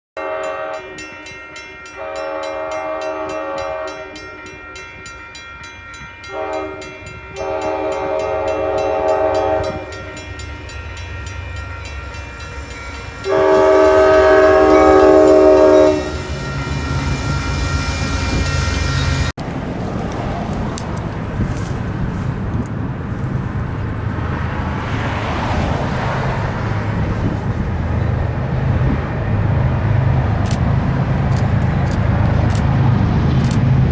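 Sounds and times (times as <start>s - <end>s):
locomotive horn blasts: 0.2s - 1.2s, 1.8s - 5.4s, 6.0s - 10.3s, 13.2s - 19.3s
train wheels on rails: 5.7s - 33.9s
diesel engine rumbling: 19.3s - 33.9s.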